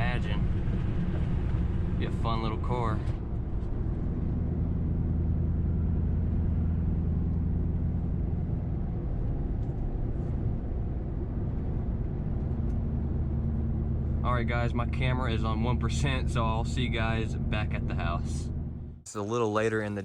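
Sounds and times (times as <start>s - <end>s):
car engine droning through exhaust: 0.0s - 19.0s.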